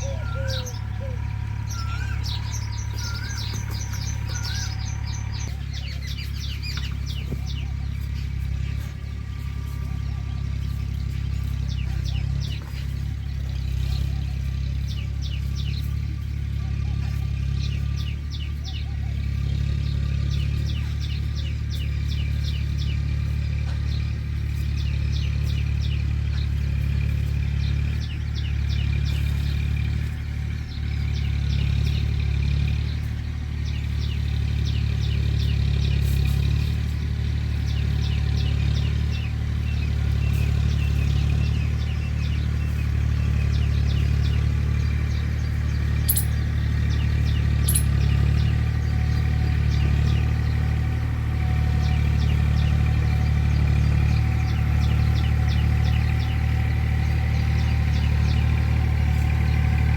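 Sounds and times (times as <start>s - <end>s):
loud steady low rumble: 0.0s - 27.3s, 30.1s - 59.9s
small birds chirping: 0.0s - 59.9s.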